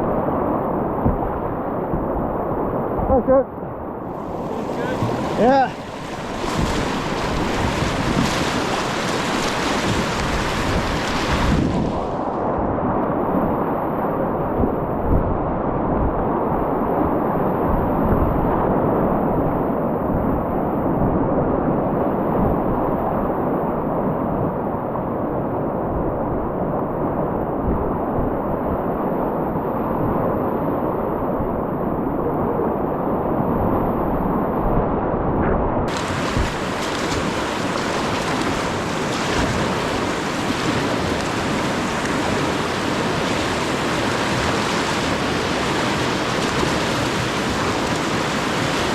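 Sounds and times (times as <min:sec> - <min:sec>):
river rapids rushing: 0:04.1 - 0:12.2, 0:35.9 - 0:48.9.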